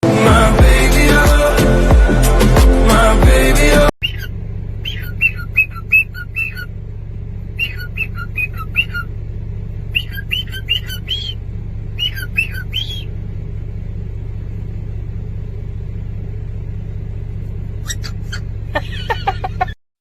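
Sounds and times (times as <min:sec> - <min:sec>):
low rumble: 0:00.0 - 0:04.9
high-pitched animal chirps: 0:04.0 - 0:06.7, 0:07.6 - 0:09.1, 0:09.9 - 0:11.4, 0:12.0 - 0:13.1, 0:17.8 - 0:18.5.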